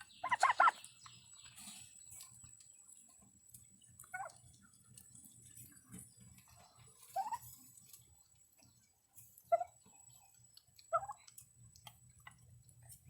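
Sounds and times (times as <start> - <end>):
turkey calls: 0.0 - 2.3, 4.0 - 4.8, 5.6 - 7.7, 9.4 - 11.4
turkeys pecking at food: 0.0 - 13.0.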